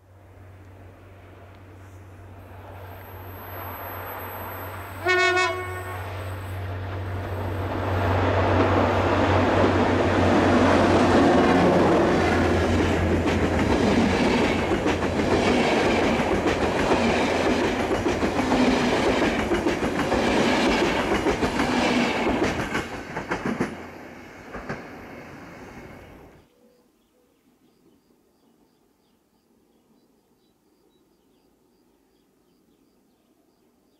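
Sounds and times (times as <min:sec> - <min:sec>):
train horn blast: 0:04.8 - 0:06.6
wheels clacking over rail joints: 0:06.8 - 0:25.2.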